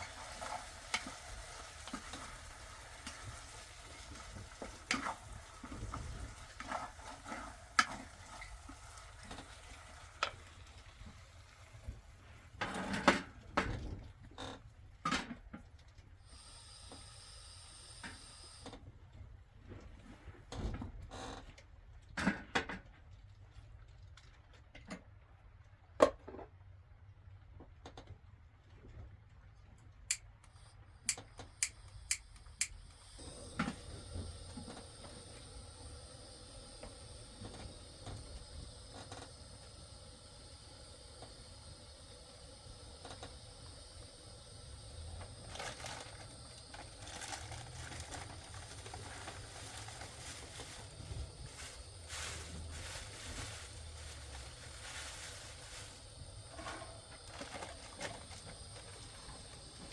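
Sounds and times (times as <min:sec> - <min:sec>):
faint steady hiss: 0:00.0 - 0:14.0, 0:30.0 - 0:59.9.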